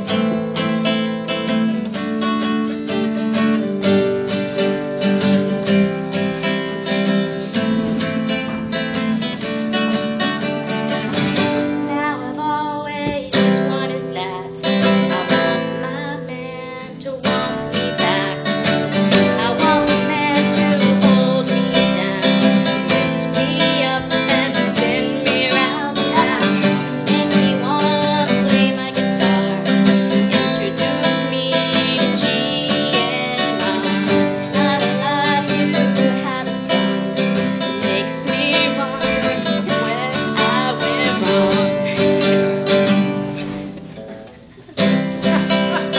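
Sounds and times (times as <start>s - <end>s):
woman singing: 0.0s - 2.1s, 11.4s - 42.5s, 45.2s - 45.9s
acoustic guitar strumming: 0.0s - 45.9s.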